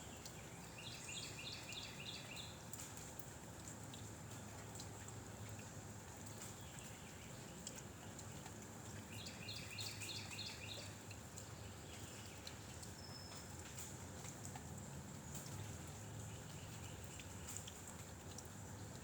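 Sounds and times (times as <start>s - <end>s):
outdoor background noise: 0.0s - 19.0s
bird chirping: 0.2s - 2.5s, 9.1s - 11.0s.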